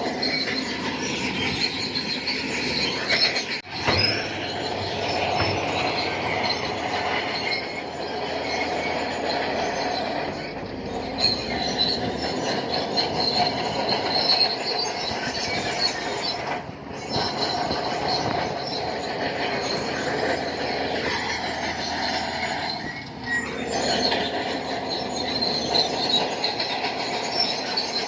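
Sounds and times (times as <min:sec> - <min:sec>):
bulldozer engine: 0:00.0 - 0:28.0
steel tracks squealing: 0:00.0 - 0:28.0.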